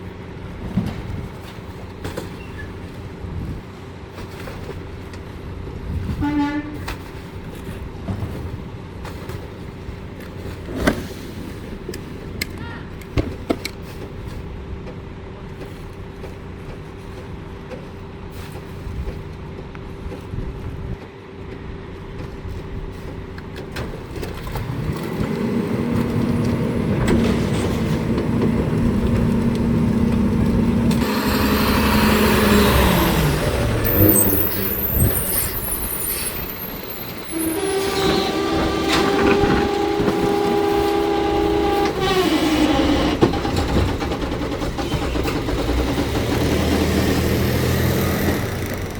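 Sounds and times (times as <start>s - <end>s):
garbage truck engine whining: 22.2s - 48.9s
loud hiss: 31.0s - 38.5s.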